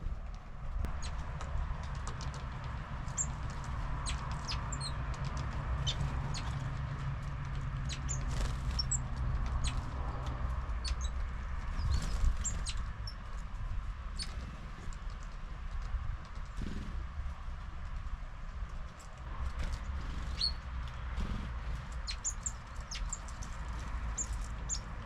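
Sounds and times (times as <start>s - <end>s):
birds tapping and pecking: 0.2s - 25.0s
songbirds calling: 3.1s - 5.0s, 5.8s - 6.7s, 7.8s - 13.3s, 19.6s - 25.0s.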